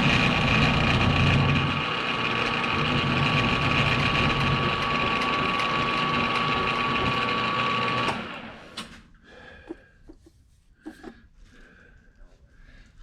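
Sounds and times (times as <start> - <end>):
machine tool whining: 0.0 - 8.6.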